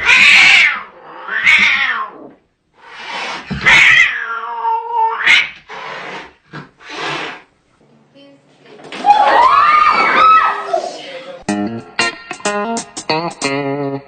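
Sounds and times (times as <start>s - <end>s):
cat yowling: 0.0s - 2.3s, 3.6s - 5.6s.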